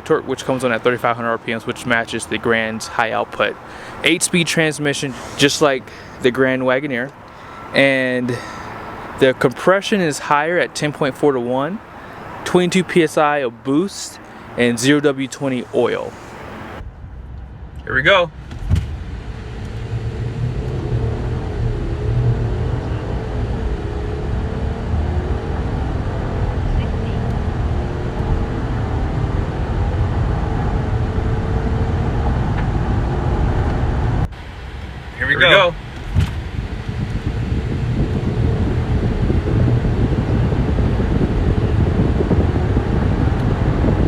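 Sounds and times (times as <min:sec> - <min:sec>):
car engine and road drone: 0:00.0 - 0:44.0.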